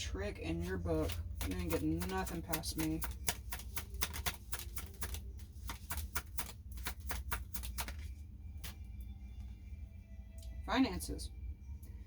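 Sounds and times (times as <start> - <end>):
steady low hum: 0.0 - 12.0
cards shuffling: 0.7 - 8.8.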